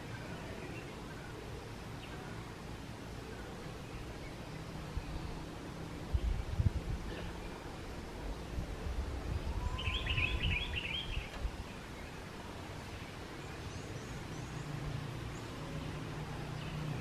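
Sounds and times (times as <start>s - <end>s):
bird chirping: 3.3s - 8.6s, 9.3s - 17.0s
wind rumble on microphone: 4.8s - 12.6s.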